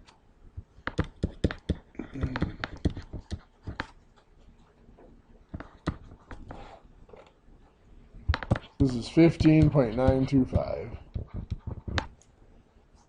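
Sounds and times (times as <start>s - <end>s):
light taps and clicks: 8.3s - 12.3s.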